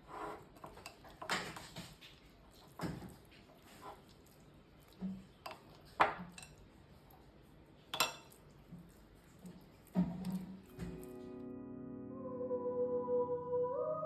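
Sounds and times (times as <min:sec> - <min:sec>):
dishes and utensils clinking: 0:05.4 - 0:06.6, 0:07.9 - 0:08.4.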